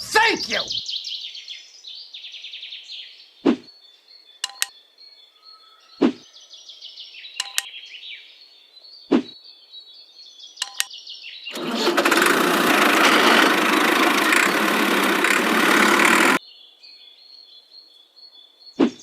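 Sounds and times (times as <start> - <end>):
birds chirping: 0.0 - 12.0
sharp clicks: 4.4 - 4.7, 7.4 - 7.7, 10.6 - 10.9.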